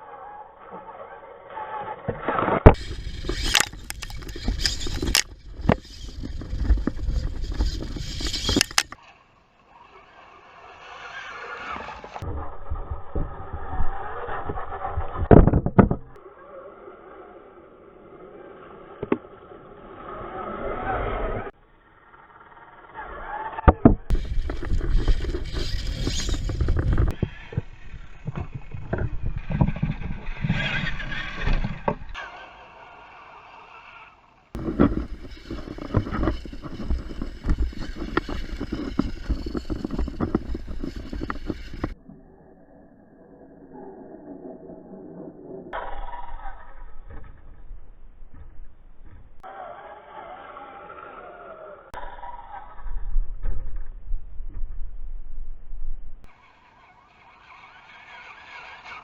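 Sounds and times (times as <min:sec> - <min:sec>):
toy truck rumbling clatter: 0:00.2 - 0:42.0, 0:56.2 - 0:59.0.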